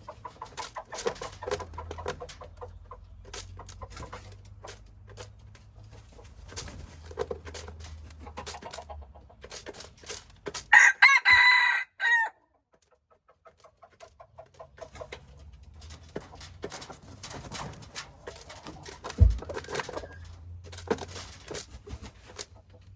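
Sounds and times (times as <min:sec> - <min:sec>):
rooster crowing: 0:10.7 - 0:12.4
faint chicken clucks: 0:10.7 - 0:15.5.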